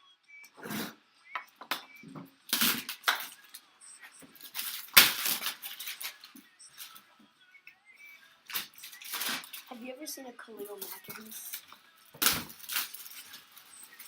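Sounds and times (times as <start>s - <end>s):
cardboard and paper rustling: 8.5s - 9.8s.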